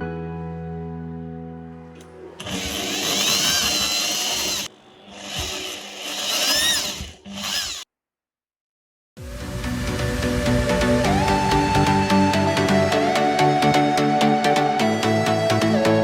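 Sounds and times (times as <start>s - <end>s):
electric drill whining: 2.0s - 7.8s.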